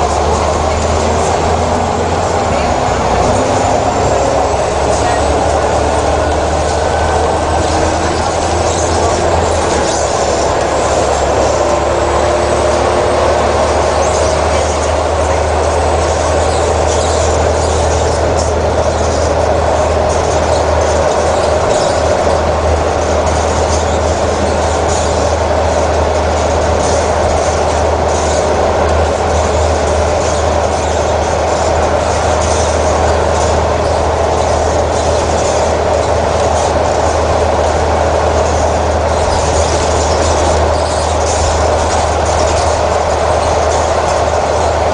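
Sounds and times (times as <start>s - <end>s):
diesel engine droning: 0.0s - 44.9s
mechanical rumble and hiss: 0.0s - 44.9s.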